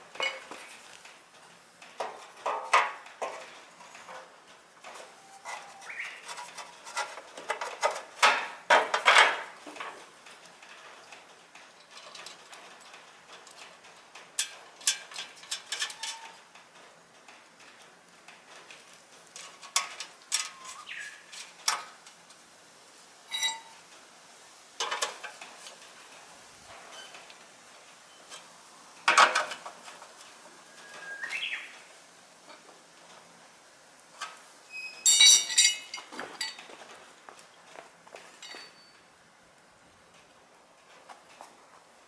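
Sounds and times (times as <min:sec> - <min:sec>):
clinks of small metal objects: 0:35.0 - 0:36.6, 0:38.4 - 0:38.9.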